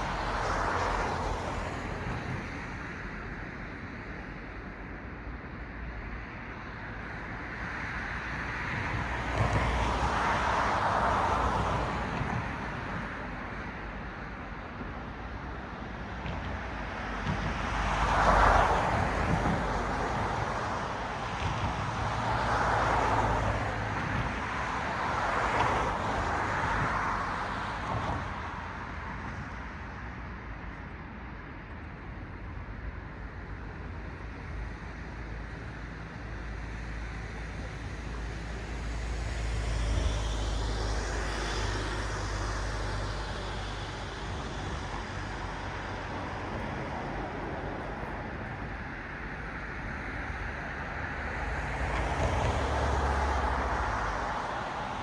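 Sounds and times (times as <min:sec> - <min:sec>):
cars passing: 0:00.0 - 0:55.0
low traffic hum: 0:00.0 - 0:55.0.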